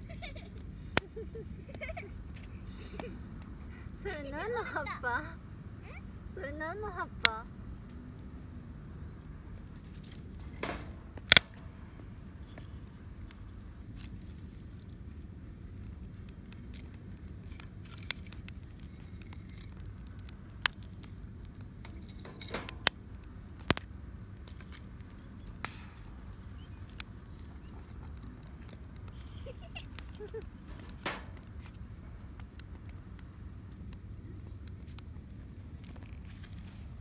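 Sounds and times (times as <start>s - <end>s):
campfire crackling and popping: 7.5s - 36.4s.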